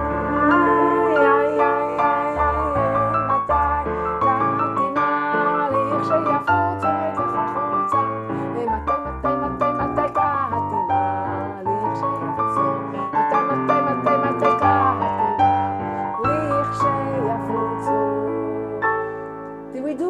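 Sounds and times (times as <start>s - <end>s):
electronic keyboard tune: 0.0s - 20.0s.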